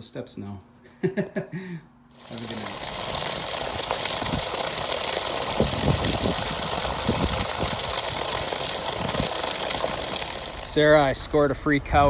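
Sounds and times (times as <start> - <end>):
constant hiss: 2.1 - 11.9
engine running steadily: 2.2 - 11.2.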